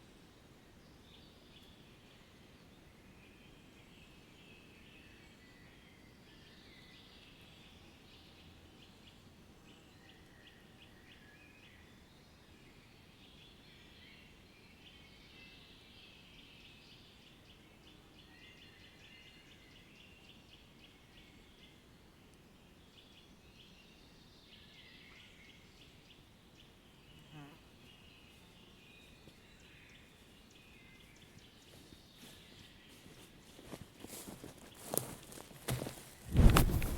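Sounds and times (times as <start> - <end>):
small birds chirping: 26.7 - 36.9.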